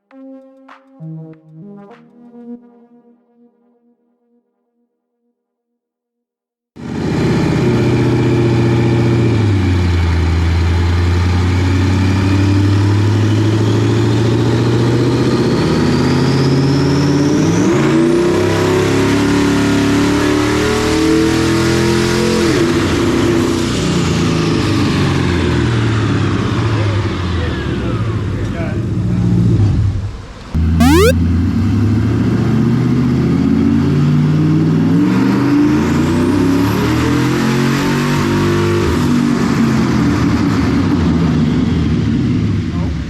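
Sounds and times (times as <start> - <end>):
turbo whistle: 30.8 - 31.1.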